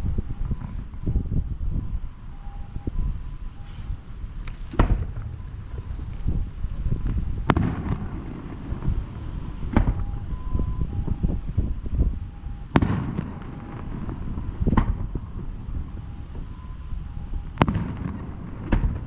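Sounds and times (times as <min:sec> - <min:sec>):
fireworks bursting with loud bangs: 0:00.0 - 0:19.0
low rumble with crackling: 0:00.0 - 0:19.0.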